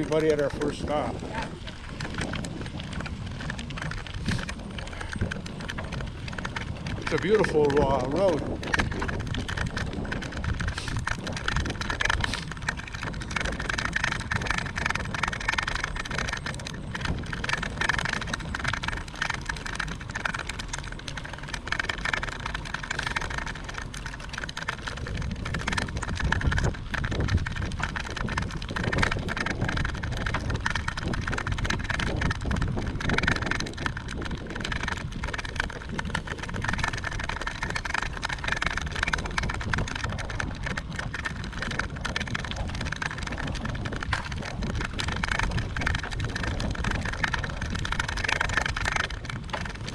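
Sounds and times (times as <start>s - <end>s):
road noise: 0.0s - 49.9s
wind buffeting microphone: 0.0s - 49.9s.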